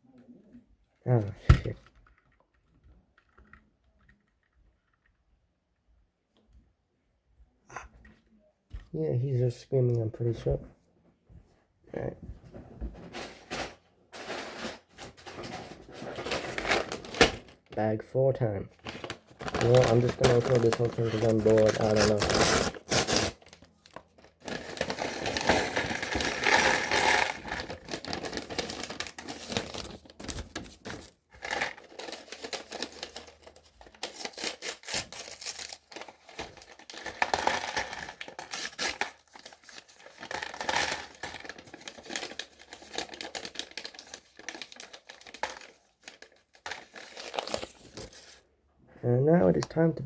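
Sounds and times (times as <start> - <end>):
plastic pieces clattering: 13.2 - 17.6, 18.9 - 48.3
plastic bag crinkling: 16.2 - 17.8, 18.8 - 48.4.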